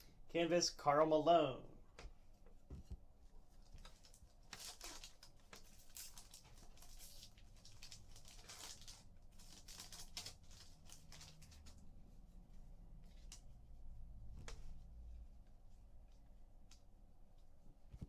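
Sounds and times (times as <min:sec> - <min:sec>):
trading cards rustling: 0:03.6 - 0:11.9.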